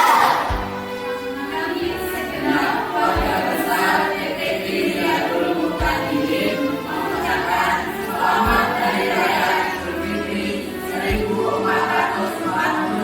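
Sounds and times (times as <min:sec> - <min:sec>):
low drum hits: 0:00.0 - 0:01.0
group of voices singing: 0:00.0 - 0:13.0
musical backing: 0:00.0 - 0:13.0.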